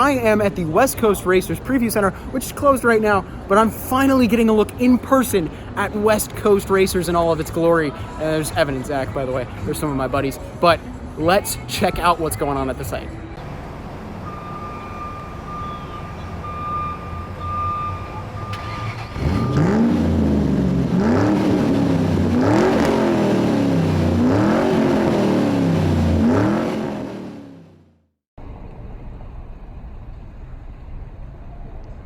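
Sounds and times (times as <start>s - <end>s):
engine revving: 18.4s - 28.0s.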